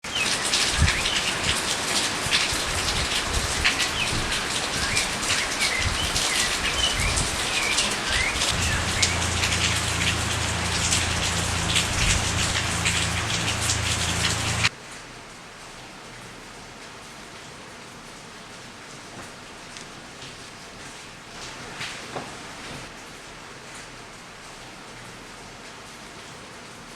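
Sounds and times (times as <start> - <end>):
rain pattering: 0.0 - 26.9
bird chirping: 5.6 - 14.7
low steady hum: 8.5 - 14.7.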